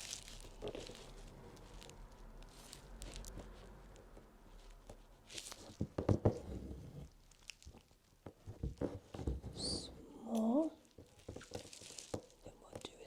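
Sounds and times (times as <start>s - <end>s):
light taps and knocks: 5.7s - 6.6s, 8.2s - 9.6s.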